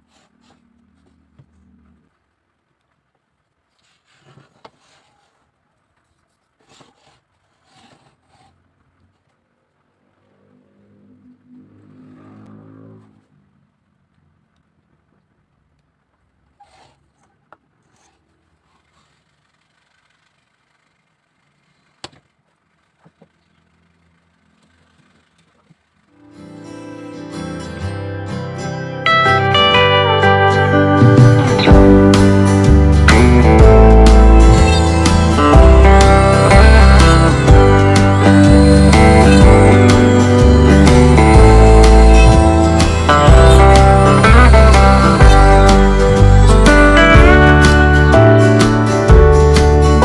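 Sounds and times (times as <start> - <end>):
bamboo scraping strokes: 0.0 - 1.3, 3.7 - 9.3, 16.6 - 21.0
faint room noise: 0.0 - 32.9
slide guitar music: 26.2 - 50.0
low engine hum: 31.1 - 49.9.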